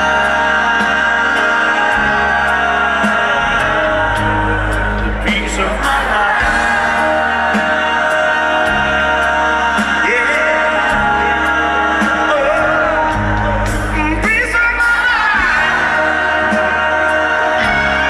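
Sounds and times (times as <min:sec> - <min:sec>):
pop-funk band playing: 0:00.0 - 0:18.0.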